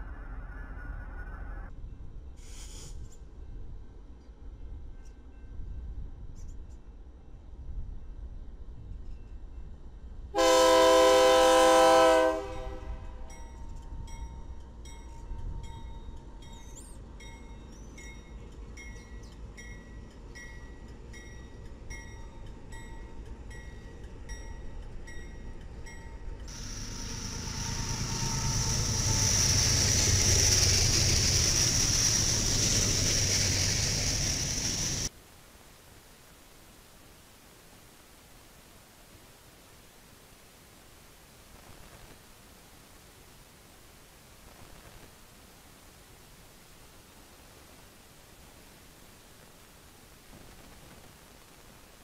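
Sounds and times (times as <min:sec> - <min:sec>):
freight train wheel noise: 0:00.0 - 0:35.2
high hiss: 0:02.4 - 0:03.2, 0:26.5 - 0:35.9
locomotive air horn blast: 0:10.3 - 0:13.3, 0:26.5 - 0:29.8.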